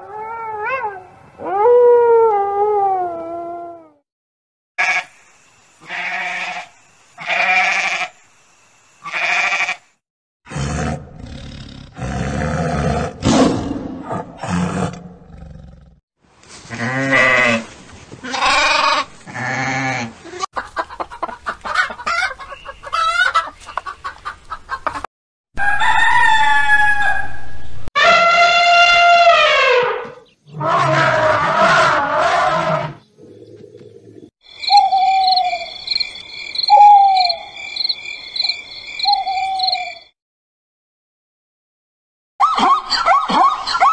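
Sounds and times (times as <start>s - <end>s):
goat bleating: 4.8s - 5.1s, 5.8s - 8.1s, 9.0s - 9.8s, 16.7s - 20.4s
lamb bleating: 4.8s - 5.1s, 5.9s - 8.1s, 9.0s - 9.8s, 18.2s - 20.1s
rooster crowing: 25.6s - 27.5s.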